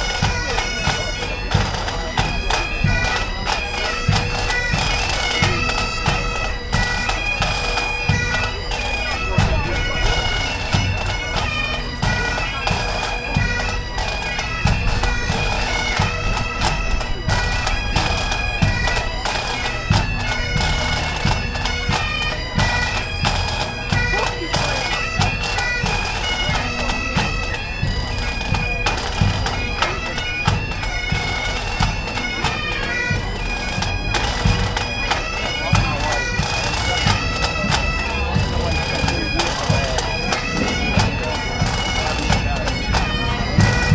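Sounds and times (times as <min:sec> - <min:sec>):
bagpipes playing a tune: 0:00.0 - 0:43.9
low drum thumps: 0:37.1 - 0:43.9.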